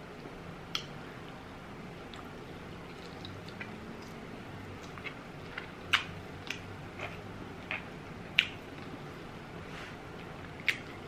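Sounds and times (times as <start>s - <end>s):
wet mouth clicks and smacks: 0.7s - 0.9s, 4.8s - 8.9s, 10.6s - 11.0s
chewing chicken: 2.0s - 9.1s, 10.1s - 11.0s.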